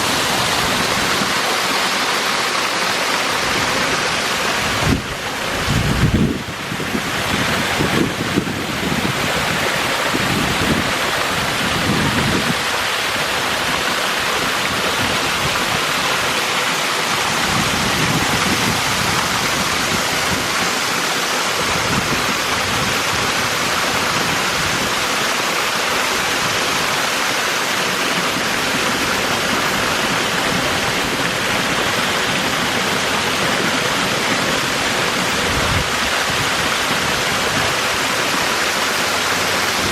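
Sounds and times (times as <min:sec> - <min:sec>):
waterfall pouring: 0:00.0 - 0:39.9.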